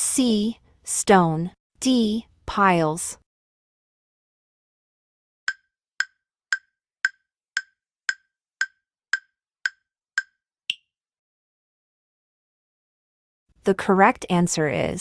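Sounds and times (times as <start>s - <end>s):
countdown timer ticks: 5.5s - 10.8s.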